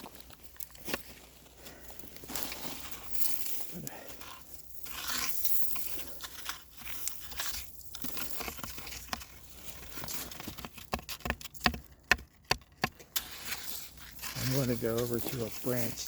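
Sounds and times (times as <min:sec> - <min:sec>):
footsteps crunching through leaves: 0:00.0 - 0:03.7, 0:13.2 - 0:16.0.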